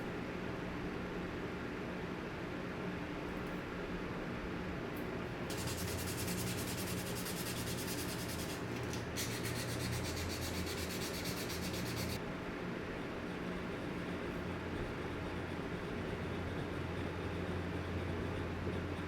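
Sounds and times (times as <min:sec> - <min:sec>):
steady low hum: 0:04.1 - 0:19.0
abrasive sanding on knife: 0:05.5 - 0:12.2.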